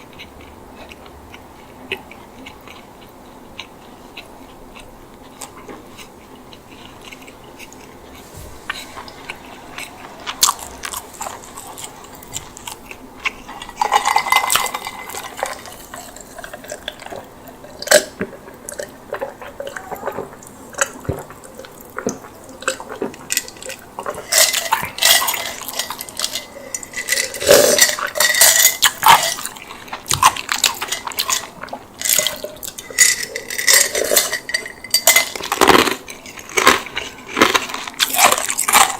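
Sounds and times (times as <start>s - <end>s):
biting and chewing bread: 0.0s - 38.9s
tableware clinking: 13.7s - 18.8s, 22.7s - 36.8s.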